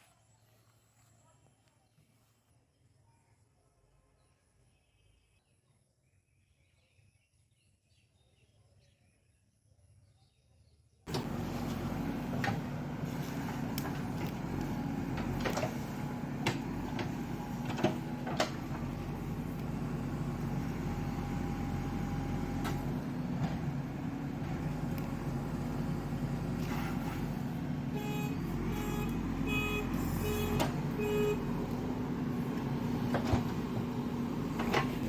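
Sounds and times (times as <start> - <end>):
diesel engine running: 11.1 - 35.0.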